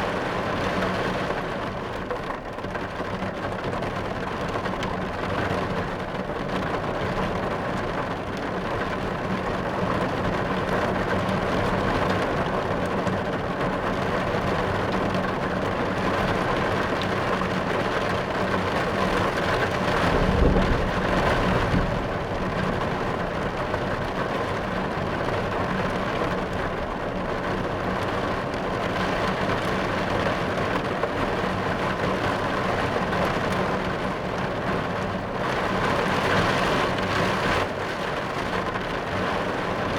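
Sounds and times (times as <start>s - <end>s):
rain on car roof: 0.0s - 39.9s
thunder rumble: 19.3s - 25.3s.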